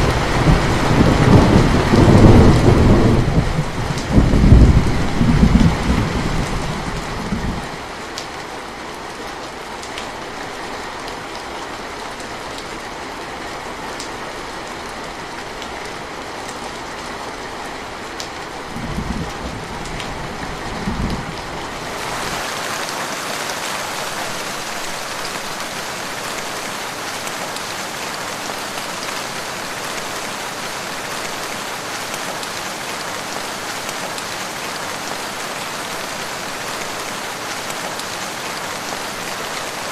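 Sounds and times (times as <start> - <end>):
low rumble of thunder: 0.0 - 7.8, 18.7 - 21.8
steady rain falling: 0.0 - 39.9.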